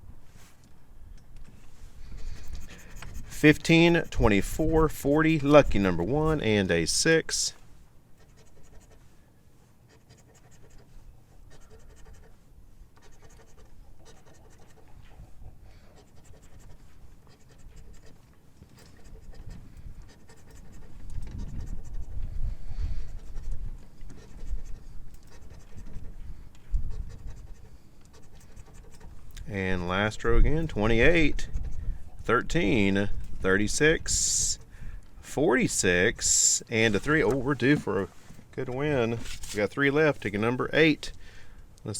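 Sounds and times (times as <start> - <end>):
lottery ticket being scratched: 2.2 - 7.6, 9.9 - 12.3, 32.3 - 34.7, 35.4 - 41.0.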